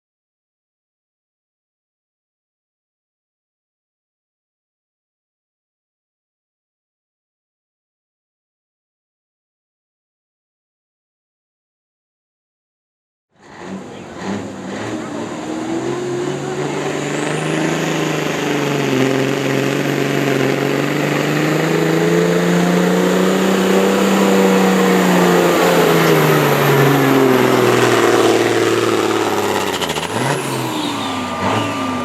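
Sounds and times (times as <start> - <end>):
pulling vehicle engine at full throttle: 13.4 - 32.0
thin high whistle: 29.1 - 32.0.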